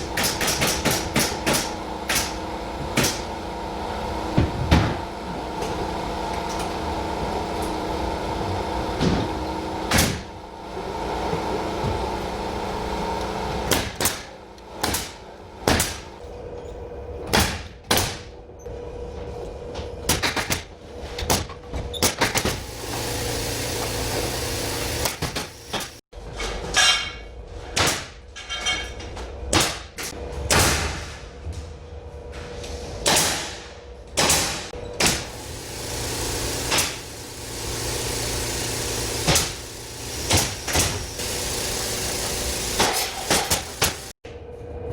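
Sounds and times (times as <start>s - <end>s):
machine hum: 0.0s - 17.3s, 22.4s - 26.0s, 34.7s - 44.9s
hiss: 35.0s - 44.1s.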